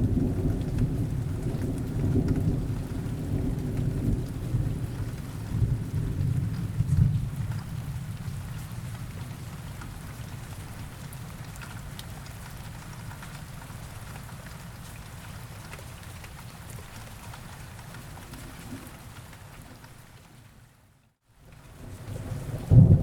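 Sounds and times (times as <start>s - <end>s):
low thunder rumble: 0.0s - 9.4s, 21.7s - 23.0s
steady rain falling: 0.0s - 23.0s
raindrops ticking: 0.1s - 20.2s.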